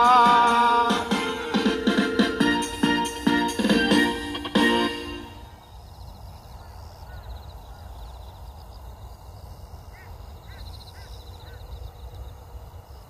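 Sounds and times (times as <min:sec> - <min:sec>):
birds chirping calls: 0:04.2 - 0:08.9, 0:09.8 - 0:12.4.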